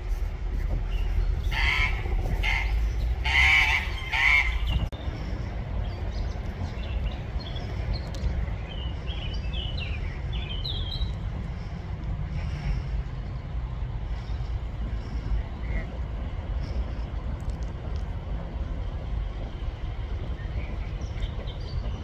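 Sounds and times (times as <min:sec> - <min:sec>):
steady low rumble: 0:00.0 - 0:22.0
duck calling loudly: 0:01.5 - 0:04.7.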